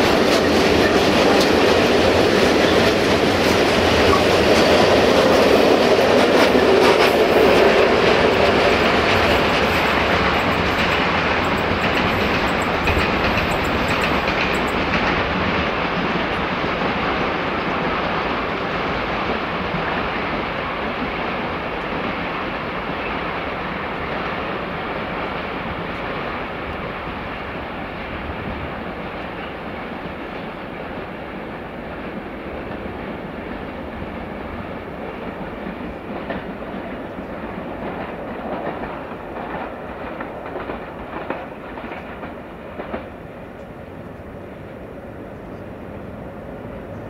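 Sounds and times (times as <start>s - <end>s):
wheels clacking over rail joints: 0.0s - 16.5s
freight train wheels rumbling: 0.0s - 47.0s.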